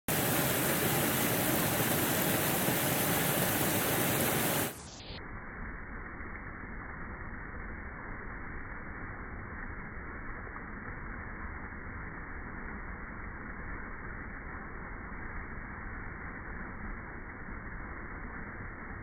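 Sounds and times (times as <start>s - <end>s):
waterfall rushing: 0.1s - 4.8s.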